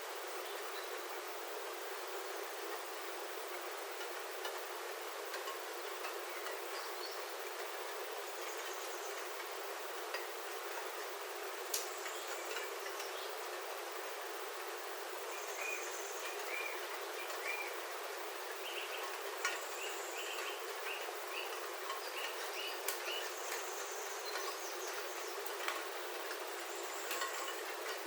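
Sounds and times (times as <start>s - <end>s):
rain on a roof: 1.1s - 28.0s
bird chirping: 15.3s - 17.9s, 18.5s - 25.6s.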